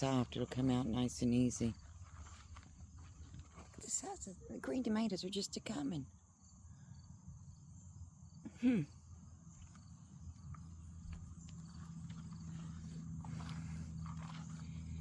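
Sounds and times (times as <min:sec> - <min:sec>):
low rumble of movement: 0:00.0 - 0:04.7, 0:09.2 - 0:15.0
insects droning: 0:00.0 - 0:15.0.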